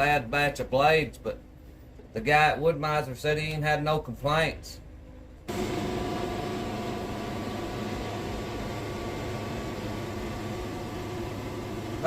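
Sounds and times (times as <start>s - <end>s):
sawmill engine running: 5.5s - 12.0s.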